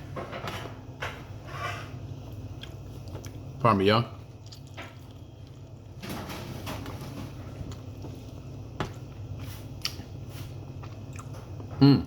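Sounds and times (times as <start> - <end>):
steady low hum: 0.0 - 12.0
chewing and mouth noise: 2.3 - 6.0, 9.0 - 11.7.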